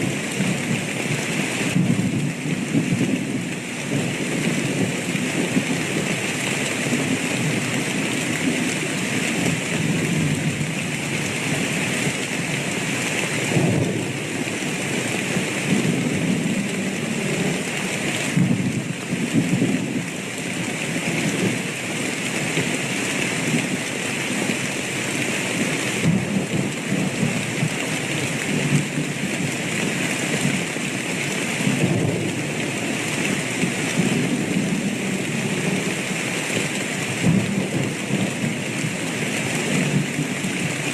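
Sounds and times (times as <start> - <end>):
thunder rumbling: 0.0 - 6.1, 13.3 - 20.1, 26.0 - 27.7, 31.6 - 35.9, 37.2 - 39.0
heavy rain: 0.0 - 40.9.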